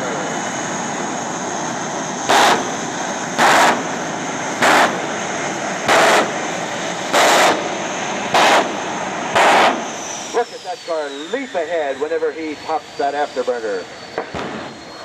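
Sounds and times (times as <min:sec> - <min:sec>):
afterburner blasts: 0:00.0 - 0:10.8, 0:14.1 - 0:15.0
jet engine whine: 0:00.0 - 0:15.0.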